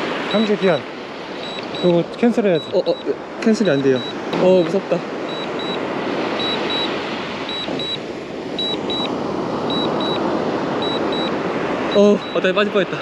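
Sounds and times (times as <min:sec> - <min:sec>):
steady rushing noise: 0:00.0 - 0:13.0
remote controller double beeps: 0:01.4 - 0:04.7, 0:05.3 - 0:05.8, 0:06.4 - 0:08.0, 0:08.6 - 0:09.1, 0:09.7 - 0:10.2, 0:10.8 - 0:13.0.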